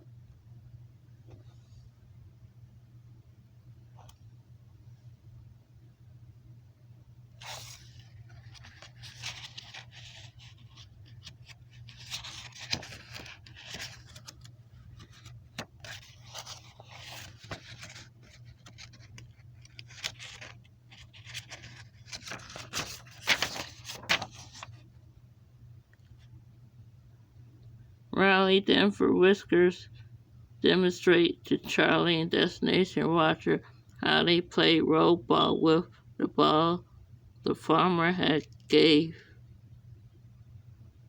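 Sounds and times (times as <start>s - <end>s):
steady low hum: 0.0s - 41.0s
rustling and scraping handling noise: 7.4s - 24.9s.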